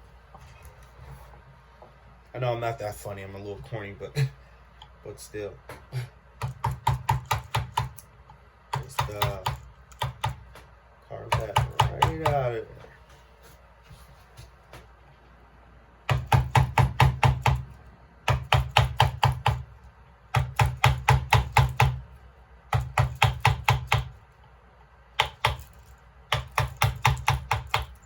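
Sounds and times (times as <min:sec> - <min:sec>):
hammer tapping chisel into wood: 0:05.7 - 0:08.0, 0:08.7 - 0:10.7, 0:11.3 - 0:12.5, 0:16.1 - 0:19.7, 0:20.3 - 0:22.0, 0:22.7 - 0:24.2, 0:25.2 - 0:28.0.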